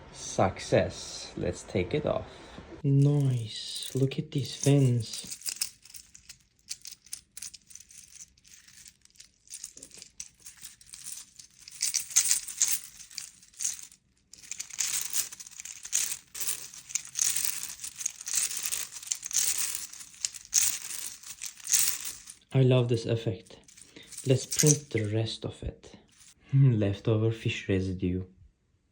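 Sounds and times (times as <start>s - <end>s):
plastic segments clicking and rattling: 3.1s - 22.4s, 23.6s - 25.1s.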